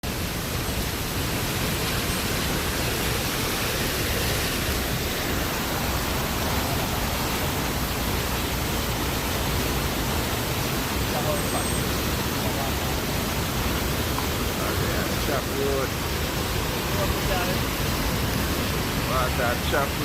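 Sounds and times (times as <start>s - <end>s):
river floodwater roaring: 0.0s - 20.0s.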